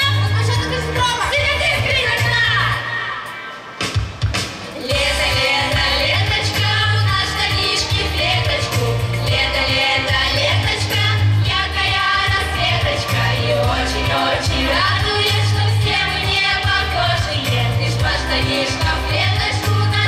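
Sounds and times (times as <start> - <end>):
amplified music with bass: 4.9 - 20.0.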